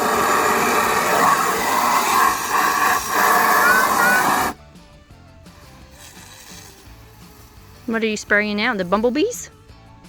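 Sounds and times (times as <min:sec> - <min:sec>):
water running into a tub: 0:00.0 - 0:04.6.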